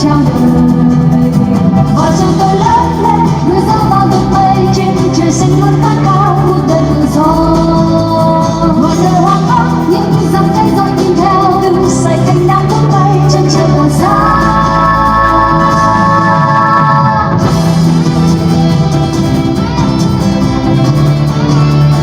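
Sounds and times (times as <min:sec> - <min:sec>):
woman singing: 0:00.0 - 0:17.6
backing music: 0:00.0 - 0:22.0.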